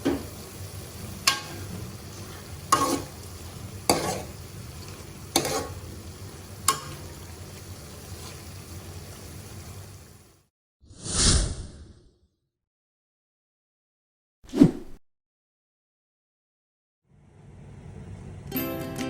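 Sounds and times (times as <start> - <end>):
food sizzling in a pan: 0.0 - 10.5
spatula scraping a pan: 1.2 - 8.8.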